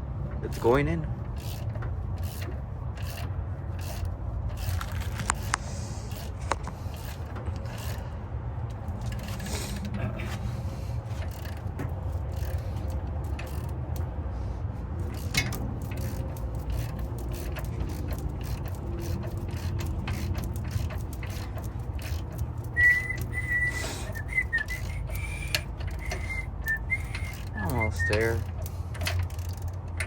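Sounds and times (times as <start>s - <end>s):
person whistling a tune: 22.7s - 28.4s.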